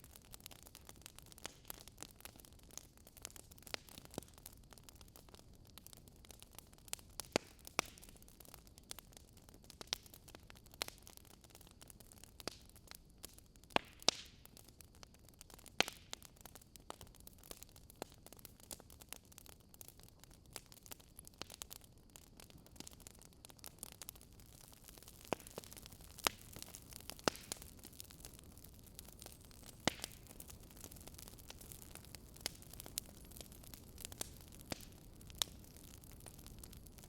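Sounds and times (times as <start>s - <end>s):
campfire crackling and popping: 0.0s - 37.0s
soft steady hiss: 0.0s - 37.0s.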